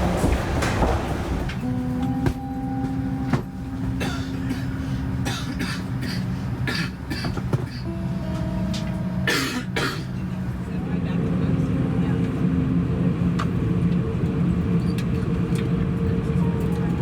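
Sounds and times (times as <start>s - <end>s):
airliner cabin hum: 0.0s - 17.0s.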